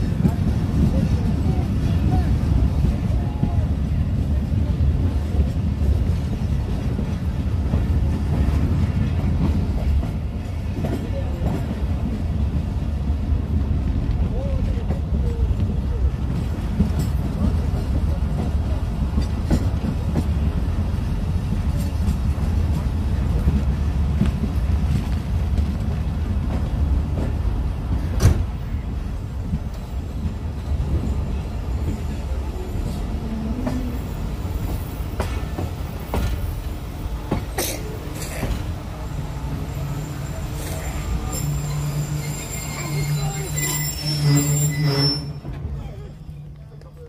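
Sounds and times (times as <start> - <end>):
train running gear rumble: 0.0 - 47.0
train brakes squealing: 37.8 - 46.4.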